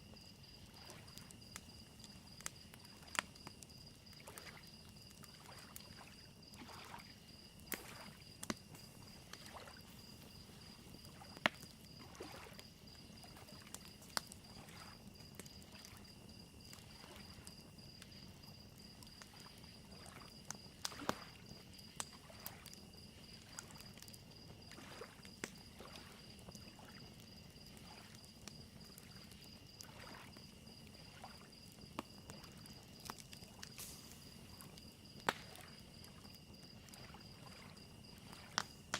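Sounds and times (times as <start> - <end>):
crickets chirping: 0.0 - 38.9
wood fire crackling and popping: 0.1 - 38.9
lake waves lapping: 5.3 - 7.1, 7.8 - 8.2, 9.0 - 11.4, 12.0 - 12.6, 24.7 - 25.2, 29.8 - 30.3.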